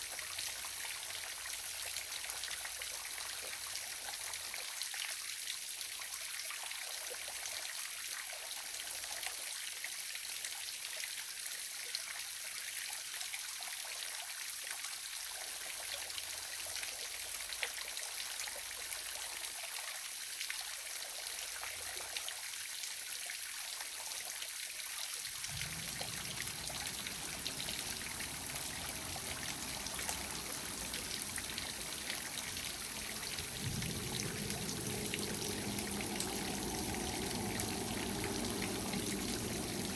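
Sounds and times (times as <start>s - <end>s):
low rumble: 25.5s - 39.9s
waterfall splashing: 25.5s - 39.9s.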